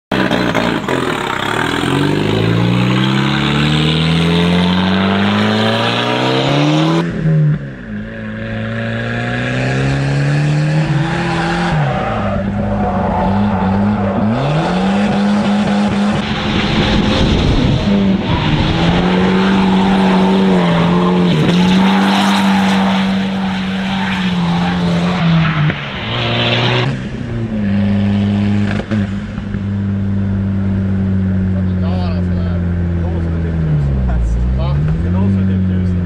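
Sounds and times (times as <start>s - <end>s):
turbocharged car engine revving: 0.1s - 36.0s.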